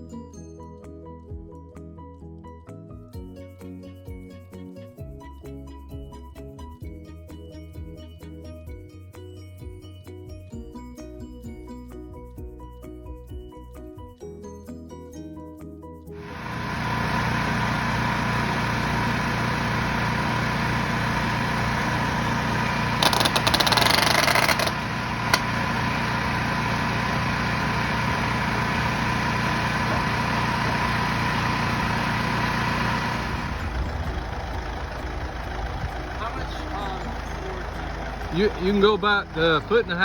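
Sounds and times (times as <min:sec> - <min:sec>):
engine running with whine: 0:16.2 - 0:40.0
sharp click: 0:23.0 - 0:25.5.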